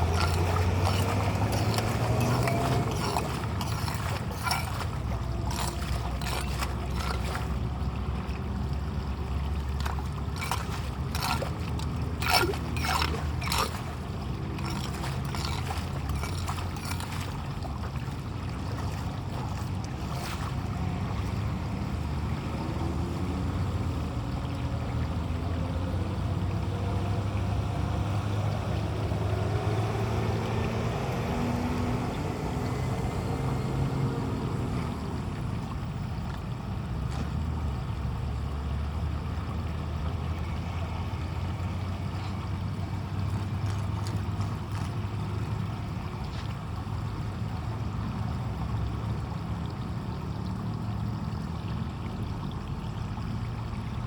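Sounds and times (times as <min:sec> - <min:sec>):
sharp knocks and scrapes: 0:00.0 - 0:07.6, 0:09.7 - 0:17.4
running floodwater: 0:00.0 - 0:54.0.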